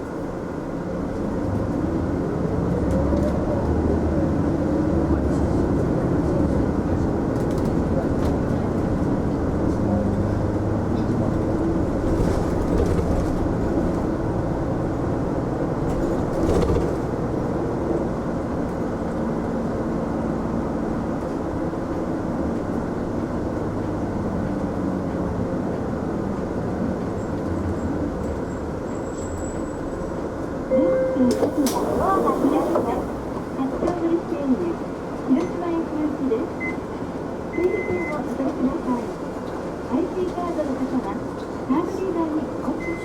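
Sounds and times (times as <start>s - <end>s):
bus engine and road noise: 0.0s - 43.0s.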